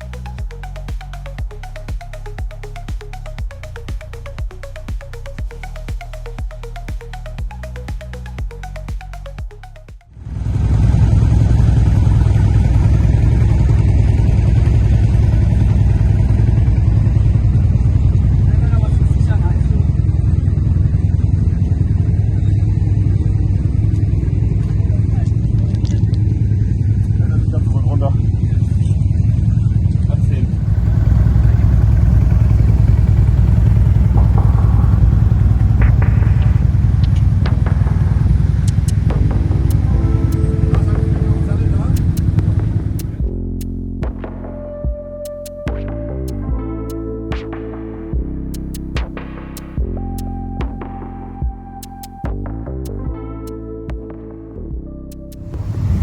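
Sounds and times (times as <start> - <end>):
quad bike engine running: 10.2 - 43.3, 55.4 - 56.0.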